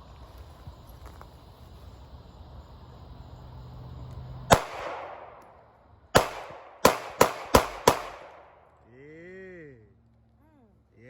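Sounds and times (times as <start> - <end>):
pistol shots with echo: 4.5 - 5.5, 6.1 - 8.7.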